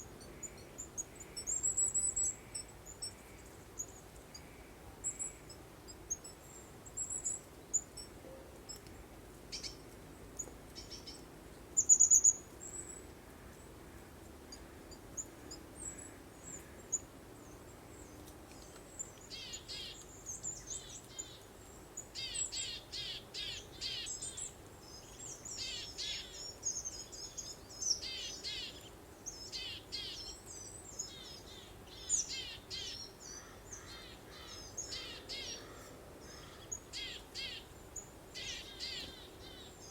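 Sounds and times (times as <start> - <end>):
faint steady hiss: 0.0 - 39.9
songbirds chirping and singing: 38.4 - 39.9.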